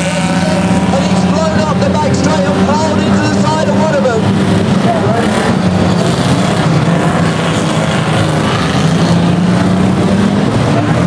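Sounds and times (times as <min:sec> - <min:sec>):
racing car engines droning: 0:00.0 - 0:11.0.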